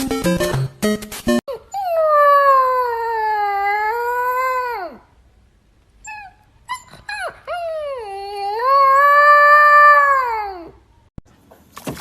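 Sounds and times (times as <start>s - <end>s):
dog whimpering and howling: 1.5s - 5.0s, 6.0s - 10.8s.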